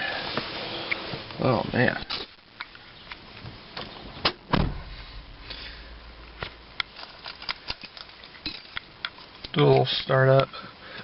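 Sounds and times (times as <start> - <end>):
car door shutting: 4.2 - 5.0
low rumble: 4.4 - 7.5
keys clicking and rattling: 6.8 - 9.4.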